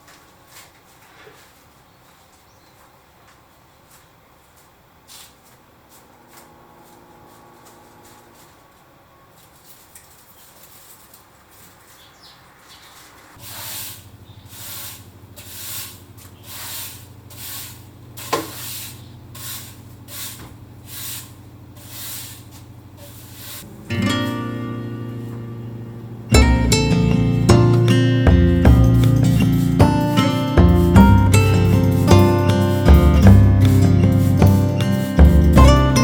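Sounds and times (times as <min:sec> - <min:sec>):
broom sweeping floor: 0:00.0 - 0:36.0.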